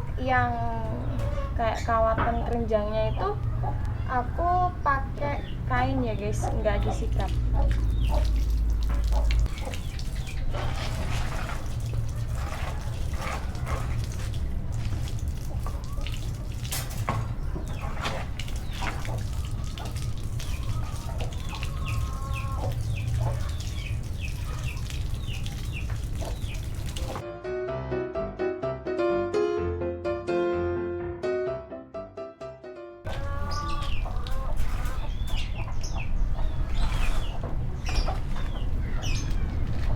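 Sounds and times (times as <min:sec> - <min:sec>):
water running and splashing: 0:06.1 - 0:27.2, 0:33.1 - 0:39.9
small knocks and clatters: 0:16.4 - 0:19.9.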